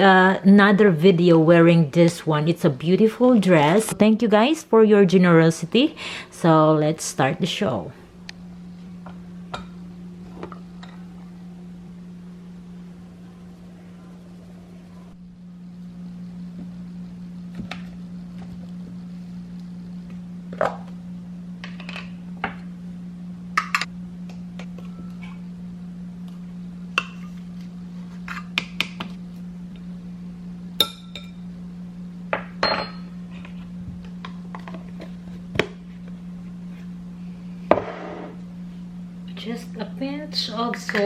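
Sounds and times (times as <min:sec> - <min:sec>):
steady low hum: 0:00.0 - 0:41.0
bowl ringing: 0:08.6 - 0:12.1, 0:24.8 - 0:25.5, 0:30.8 - 0:31.6, 0:32.6 - 0:33.2.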